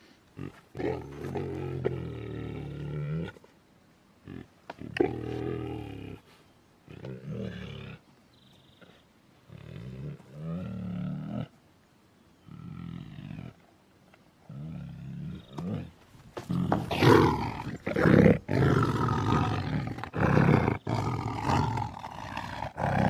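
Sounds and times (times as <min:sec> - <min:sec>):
tiger roaring: 0:14.5 - 0:23.0.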